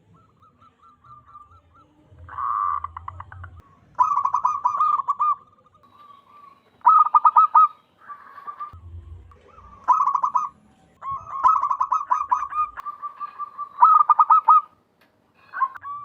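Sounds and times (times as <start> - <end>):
dove cooing: 0.0 - 14.8, 15.4 - 16.0.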